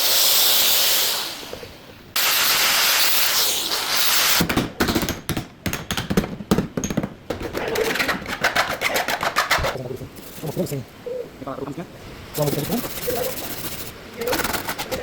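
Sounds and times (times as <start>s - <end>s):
spray hiss: 0.0s - 4.4s
sharp clicks and knocks: 4.4s - 9.8s.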